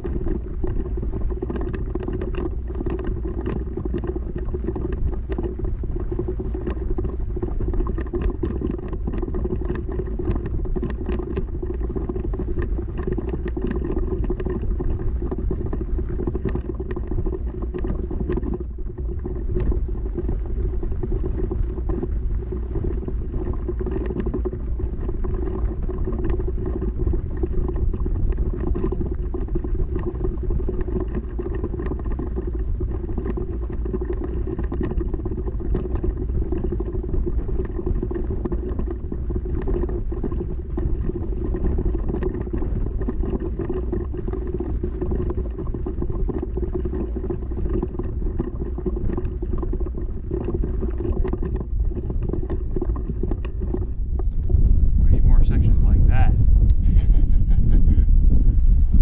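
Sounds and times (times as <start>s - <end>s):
bike tyres rumbling on dirt trail: 0.0s - 59.0s
wind buffeting microphone: 31.9s - 59.0s.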